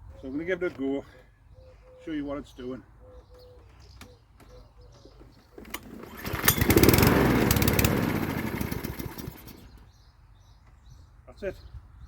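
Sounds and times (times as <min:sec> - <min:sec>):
lawnmower engine cranking: 0:05.6 - 0:09.8.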